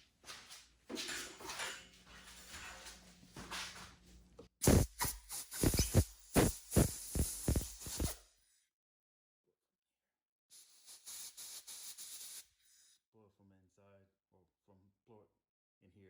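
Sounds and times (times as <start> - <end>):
handling noise: 0.3 - 6.5
compressed air bursts: 4.6 - 8.2, 10.5 - 12.9.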